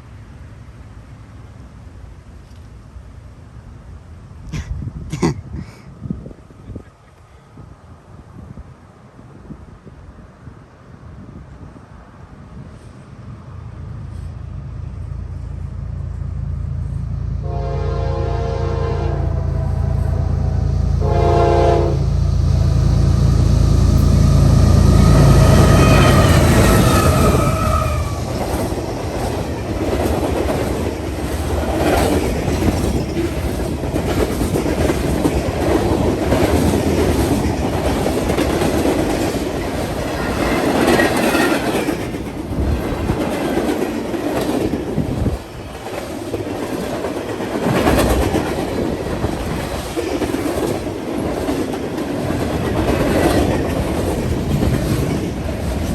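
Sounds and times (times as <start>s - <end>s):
diesel locomotive rumble: 11.0s - 55.9s
train wheels clattering on rails: 20.9s - 55.9s.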